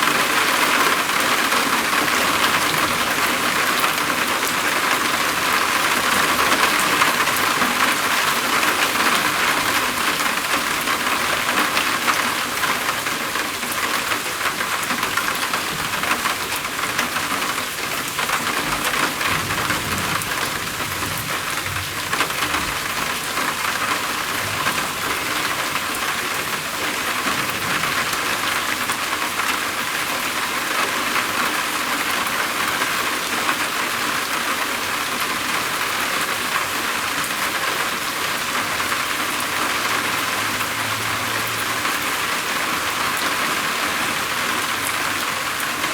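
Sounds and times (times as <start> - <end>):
heavy rain drumming on a roof: 0.0 - 45.9.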